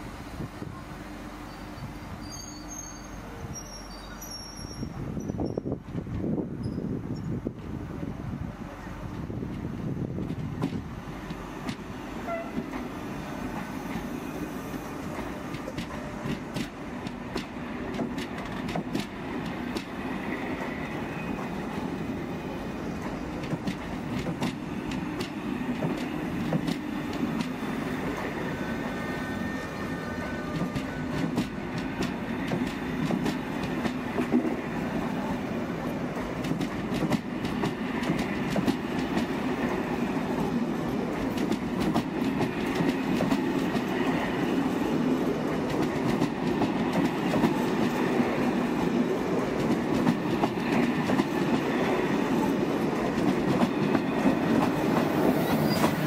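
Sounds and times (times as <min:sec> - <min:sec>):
train rumble: 0:00.0 - 0:56.0
thin wheel squeals: 0:01.5 - 0:05.6.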